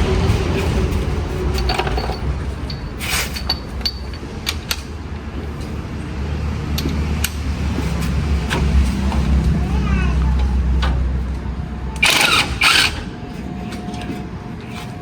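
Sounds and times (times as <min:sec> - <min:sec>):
creaking squeaks: 0:12.0 - 0:14.2.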